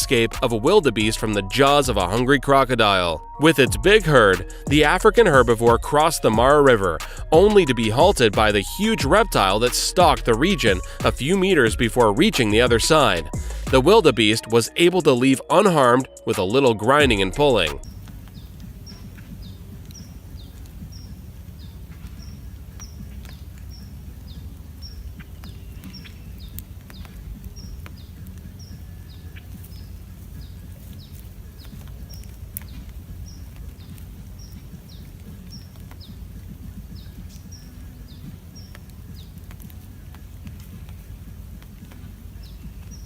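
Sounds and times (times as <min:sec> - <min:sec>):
low rumbling noise: 0:00.0 - 0:14.2
bird chirping: 0:00.0 - 0:43.0.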